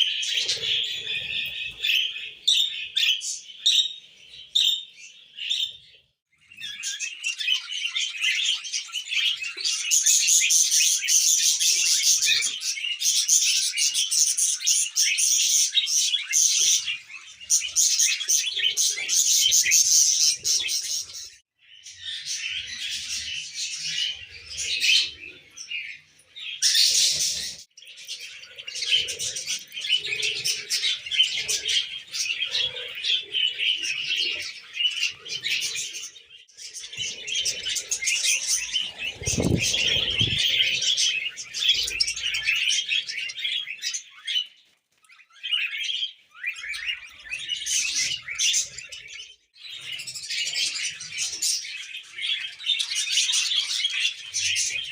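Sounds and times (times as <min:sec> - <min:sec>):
parrots chattering and chirping: 0:22.0 - 0:54.9.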